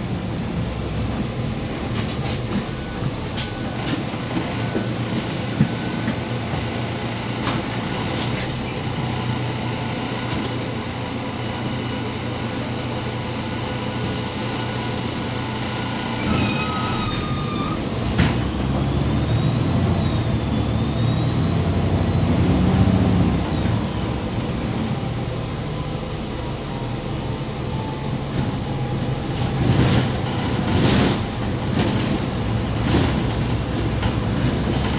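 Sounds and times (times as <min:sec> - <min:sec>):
bus engine and road rumble: 0:00.0 - 0:34.9
high squeal and click: 0:08.4 - 0:10.8, 0:15.5 - 0:18.9.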